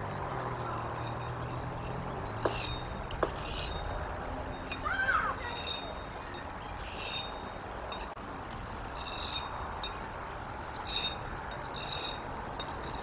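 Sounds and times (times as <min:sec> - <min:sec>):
steady outdoor hiss: 0:00.0 - 0:13.0.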